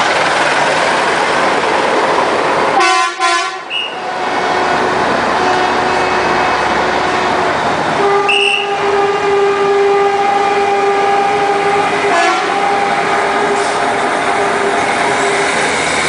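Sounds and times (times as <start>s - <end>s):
truck engines running: 0.0s - 2.8s, 3.5s - 16.0s
truck horn blasts: 2.8s - 4.1s, 5.4s - 13.8s.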